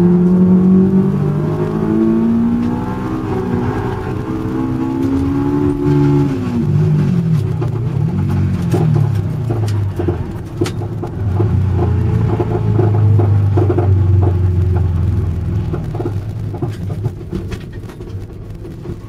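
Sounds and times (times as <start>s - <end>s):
car engine revving: 0.0s - 19.0s
clicks and knocks: 7.1s - 19.0s.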